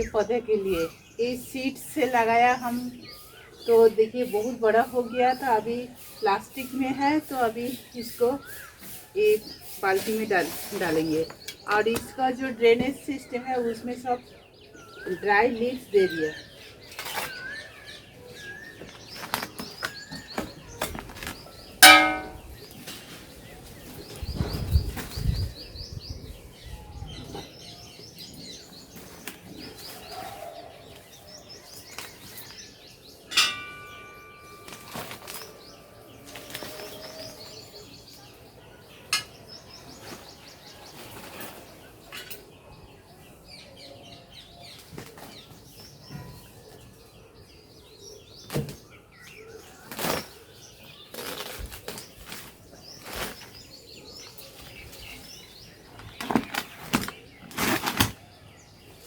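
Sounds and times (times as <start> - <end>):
small birds chirping: 0.0 - 59.0
sharp ringing clanks: 21.8 - 22.5, 33.3 - 35.5
handling plant pot and soil: 33.4 - 37.7, 49.9 - 58.4.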